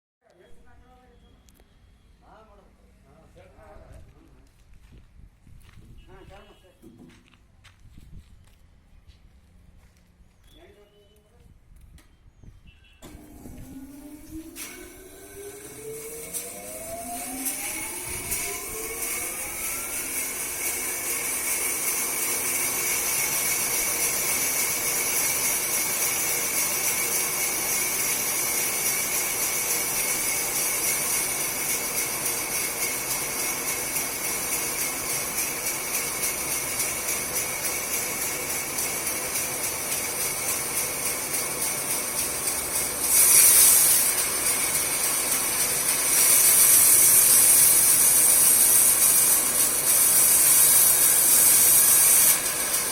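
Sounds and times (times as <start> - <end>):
saw cutting wood hiss: 13.0 - 52.9
sawmill saw whining: 13.0 - 52.9.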